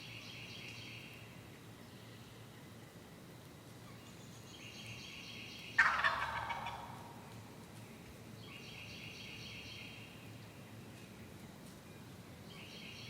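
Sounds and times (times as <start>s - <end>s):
turkey gobbling: 5.8s - 7.2s.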